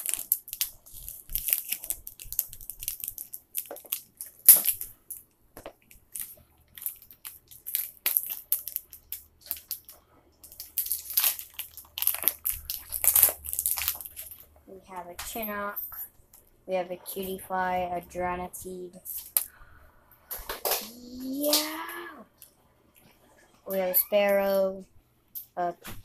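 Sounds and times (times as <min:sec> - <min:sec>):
foil wrapper crinkling: 0:00.0 - 0:14.5.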